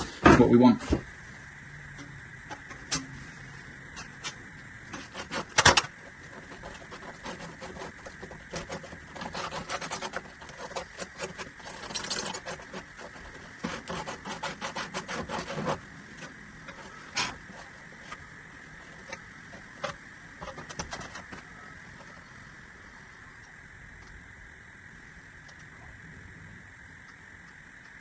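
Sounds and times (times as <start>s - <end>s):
plastic pipes scraping and knocking: 2.0s - 22.3s.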